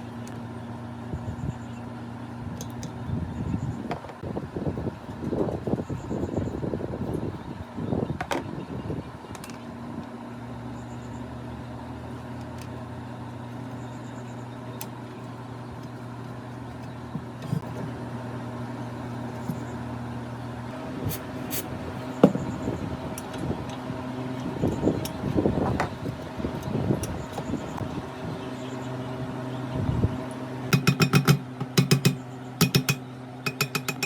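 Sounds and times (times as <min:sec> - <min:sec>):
low motor hum: 0:00.0 - 0:33.8
sharp clicks and knocks: 0:30.7 - 0:34.0.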